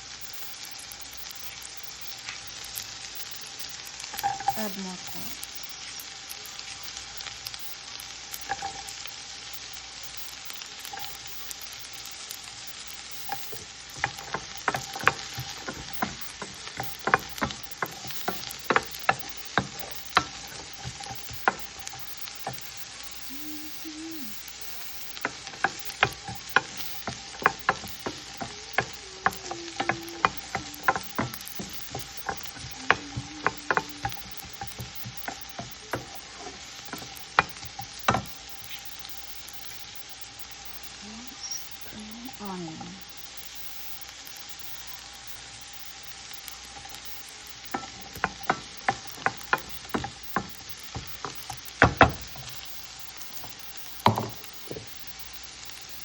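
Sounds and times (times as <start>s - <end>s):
food sizzling in frying pan: 0.0s - 56.0s
utensil scraping against pan: 24.8s - 38.9s.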